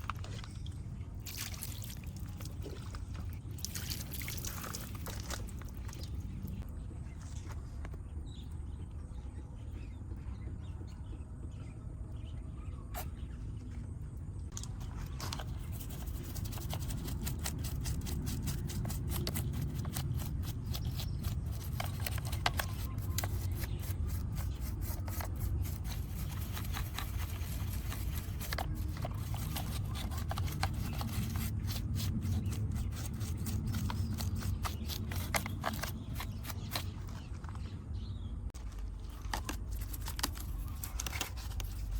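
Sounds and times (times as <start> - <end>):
scrapes and clicks on model car: 15.0 - 37.3.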